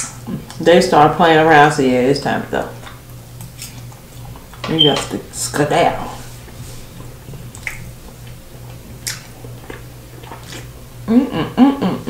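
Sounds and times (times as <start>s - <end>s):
chewing food: 6.4s - 10.8s
person humming: 11.0s - 12.0s.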